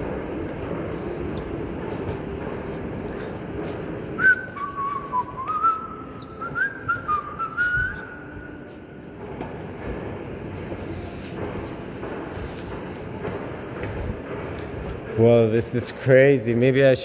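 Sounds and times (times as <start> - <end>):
faint footsteps on escalator steps: 0.0 - 17.0
person whistling a tune: 4.2 - 8.4.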